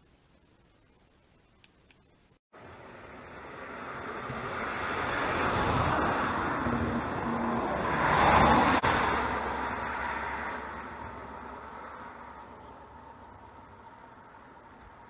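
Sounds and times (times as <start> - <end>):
vehicle passing by: 2.6 - 14.6.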